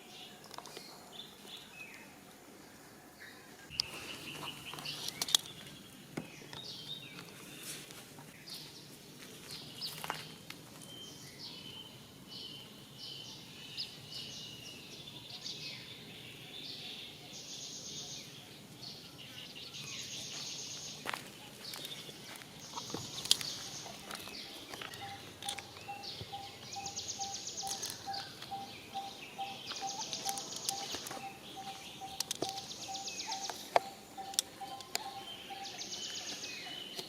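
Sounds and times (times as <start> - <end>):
high chirping calls: 18.9 - 37.0
sharp clicks: 32.1 - 35.2.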